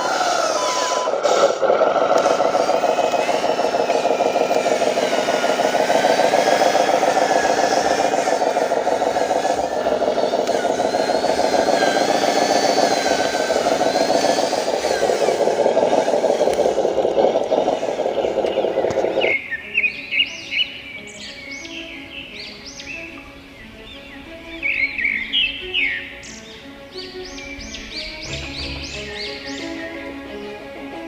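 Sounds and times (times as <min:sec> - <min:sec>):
toy truck motor and gear drone: 0:00.0 - 0:19.4.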